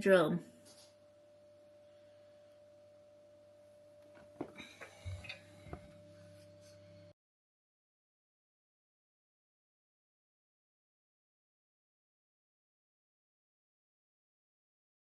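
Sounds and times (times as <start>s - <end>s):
faint steady hum: 0.0s - 7.2s.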